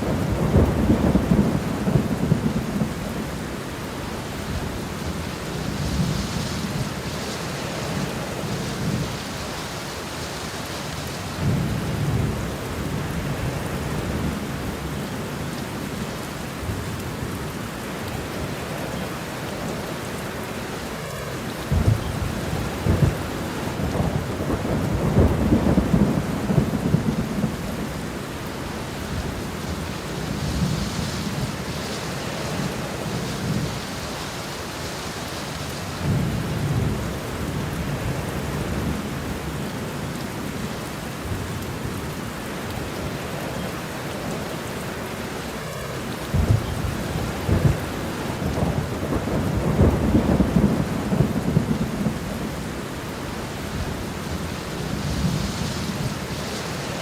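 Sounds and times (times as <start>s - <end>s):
rolling thunder: 0.0s - 3.4s, 20.8s - 34.2s, 45.7s - 57.0s
steady rain: 0.0s - 57.0s.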